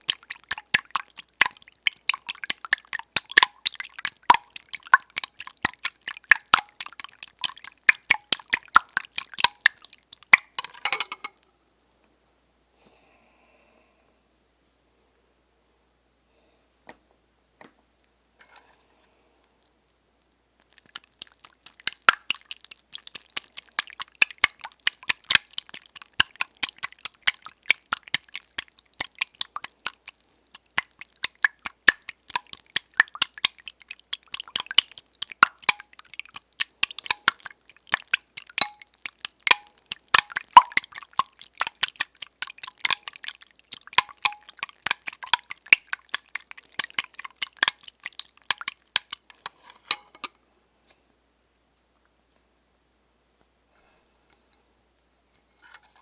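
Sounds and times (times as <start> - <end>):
eggs being beaten in bowl: 0.0 - 11.3, 20.6 - 50.0.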